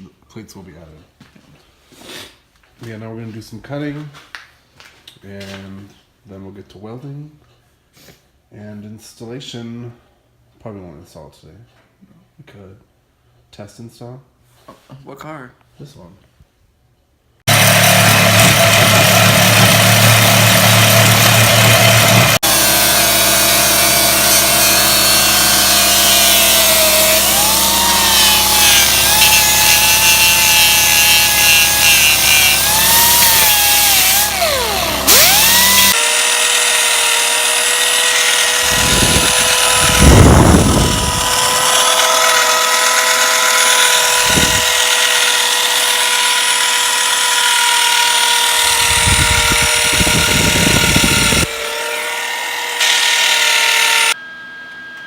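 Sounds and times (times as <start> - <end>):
grinding bursts: 17.5 - 54.2
power tool cutting metal bar: 17.5 - 54.2.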